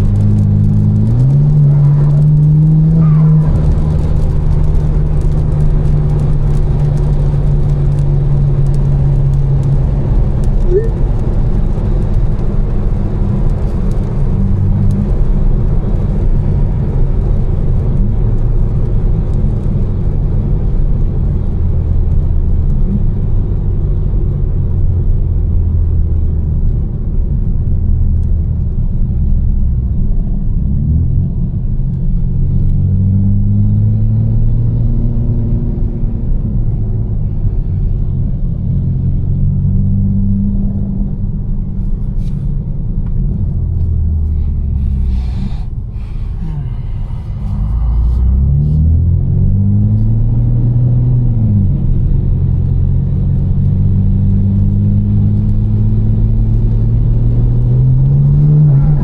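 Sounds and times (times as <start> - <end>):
tyres hissing on wet road: 0.0 - 15.3, 43.5 - 49.4
car engine droning: 0.0 - 59.0.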